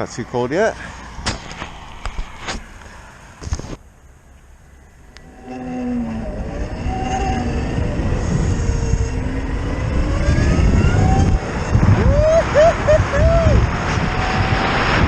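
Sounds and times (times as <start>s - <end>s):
wind and road noise: 0.0s - 15.0s
electric motor whine: 5.1s - 12.1s.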